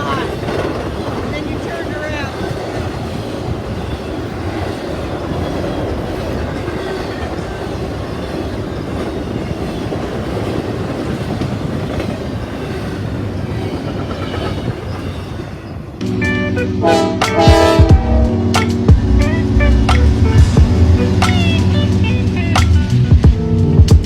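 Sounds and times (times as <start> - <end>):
wheels clacking over rail joints: 0.0 - 16.0
train wheels rumbling on rails: 0.0 - 16.2, 16.9 - 24.0.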